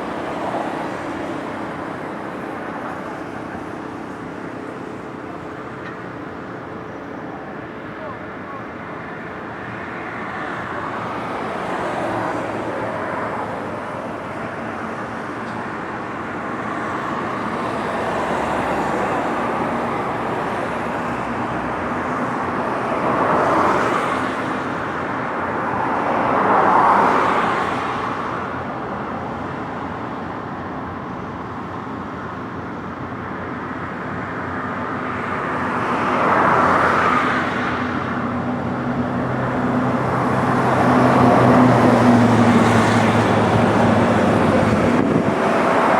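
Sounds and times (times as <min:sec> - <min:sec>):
road traffic hum: 0:00.0 - 0:45.9
vehicles passing close: 0:00.0 - 0:45.9.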